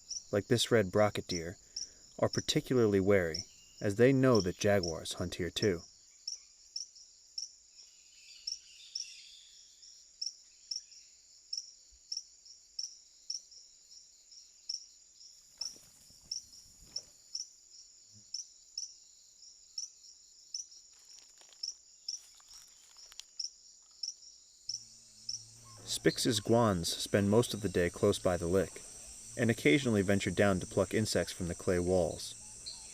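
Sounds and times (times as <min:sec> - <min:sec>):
sharp insect chirps: 0:00.0 - 0:05.0, 0:05.8 - 0:32.9
insects trilling: 0:00.0 - 0:32.9
soft rustling: 0:20.9 - 0:23.4.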